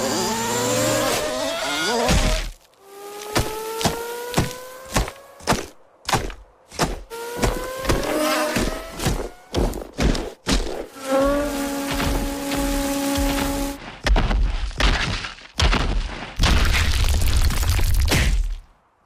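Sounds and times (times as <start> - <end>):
rising pitched drone: 11.0 - 13.8.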